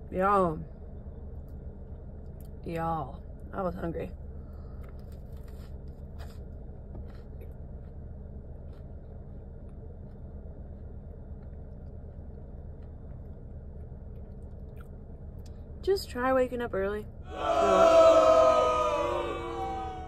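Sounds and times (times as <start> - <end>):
faint chewing clicks: 8.6 - 15.7.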